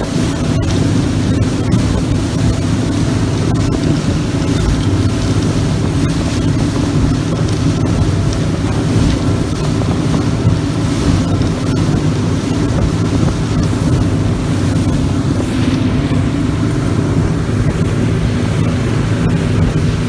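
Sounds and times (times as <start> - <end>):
speedboat engine running: 0.0 - 20.0
water rushing past hull: 0.0 - 20.0
wind buffeting microphone: 0.0 - 20.0.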